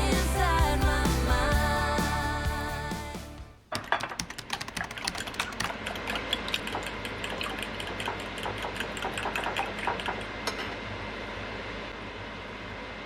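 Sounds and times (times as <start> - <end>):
low hum: 0.0 - 3.6.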